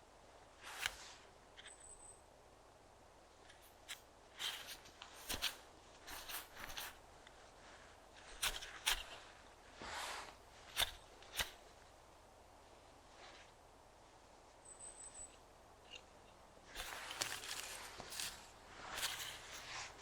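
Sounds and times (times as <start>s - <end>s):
leaf litter crunching and rustling: 16.7s - 20.0s.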